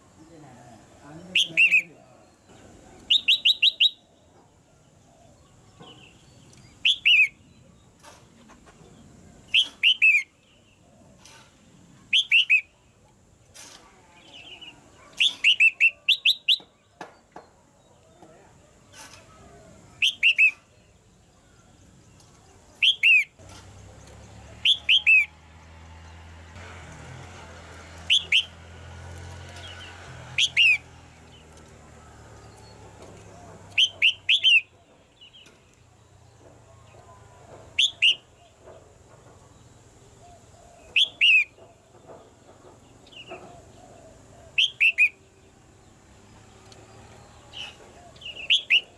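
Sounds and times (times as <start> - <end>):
bird calling in sharp notes: 24.6 - 25.3, 28.1 - 28.6, 33.6 - 34.7, 37.8 - 38.4, 40.4 - 41.6, 44.5 - 45.2.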